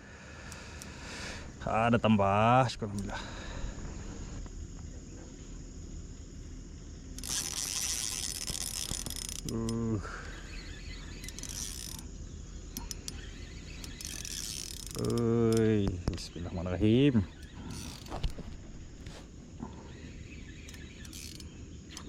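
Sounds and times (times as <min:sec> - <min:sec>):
fishing reel whirring: 0:07.0 - 0:22.0
small sharp clicks: 0:12.7 - 0:16.3, 0:20.4 - 0:22.0.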